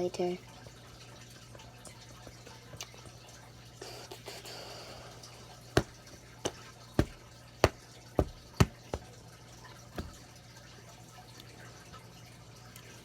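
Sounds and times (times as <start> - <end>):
sharp taps: 5.8 - 9.1, 10.0 - 10.2.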